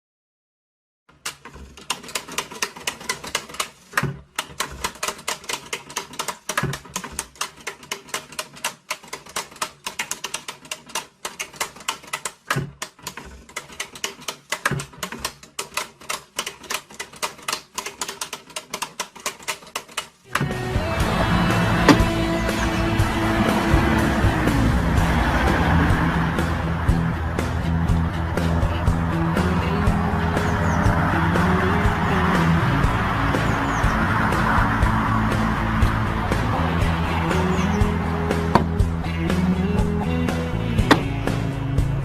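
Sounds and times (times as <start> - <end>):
rapid mechanical clacking: 1.1 - 42.0.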